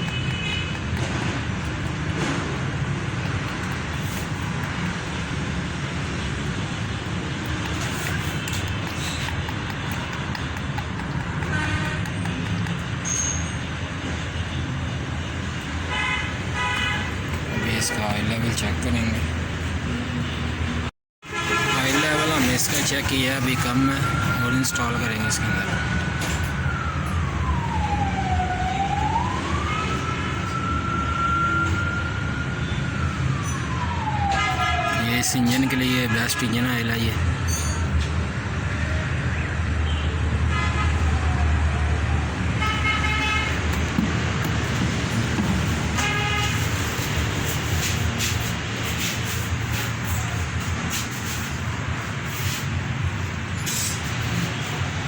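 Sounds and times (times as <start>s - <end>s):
road traffic rumble: 0.0s - 55.0s
siren wailing: 22.2s - 36.1s, 41.0s - 53.2s.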